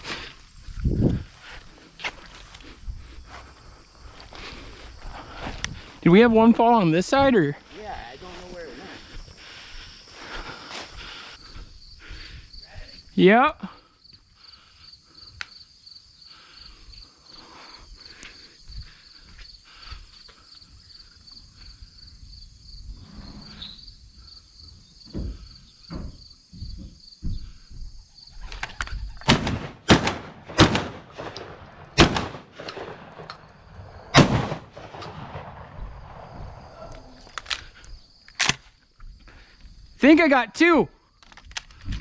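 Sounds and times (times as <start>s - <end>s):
insects chirring: 0.0s - 42.0s
shotgun shots echoing: 29.2s - 37.2s.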